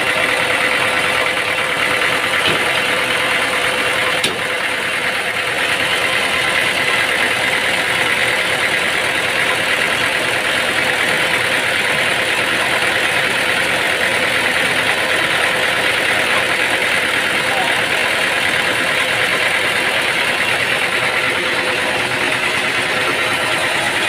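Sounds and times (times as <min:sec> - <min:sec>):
motor running steadily: 0:00.0 - 0:24.0.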